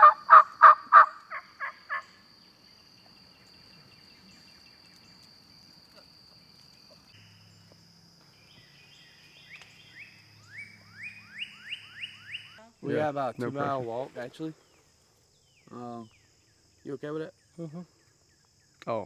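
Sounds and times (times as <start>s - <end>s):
turkey calling: 0.0s - 2.2s, 8.6s - 12.6s
high insect trill: 0.0s - 19.0s
songbird whistled notes: 8.4s - 12.6s.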